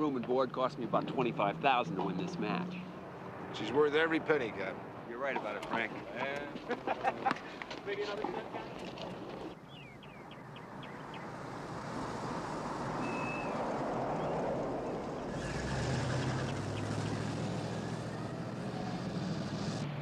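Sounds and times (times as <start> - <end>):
car road noise: 0.0 - 20.0
low engine hum: 8.2 - 20.0.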